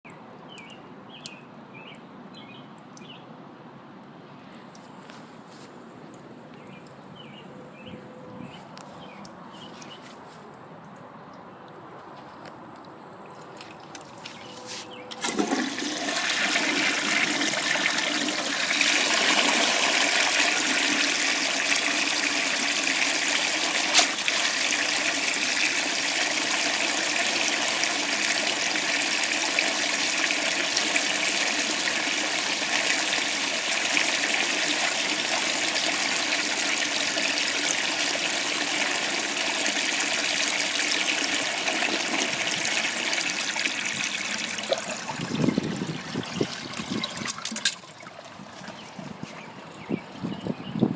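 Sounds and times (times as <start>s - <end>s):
toilet flush clunk: 15.1s - 47.9s
toilet water rushing: 15.1s - 48.9s.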